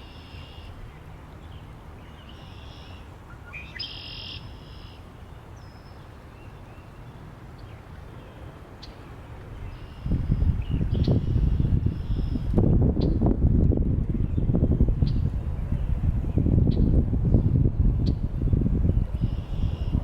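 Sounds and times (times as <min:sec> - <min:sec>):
songbirds singing: 0:00.0 - 0:13.3, 0:14.0 - 0:20.0
low wind rumble: 0:00.0 - 0:20.0
wind gust on microphone: 0:09.5 - 0:20.0.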